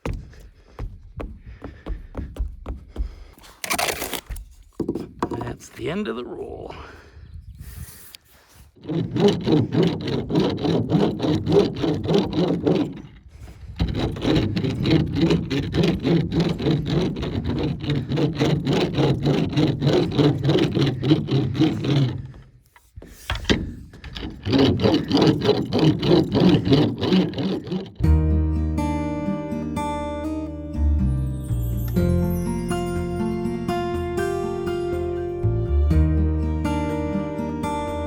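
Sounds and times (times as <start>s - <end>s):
tape roller rubbing on wood: 3.4s - 5.0s, 7.7s - 28.1s.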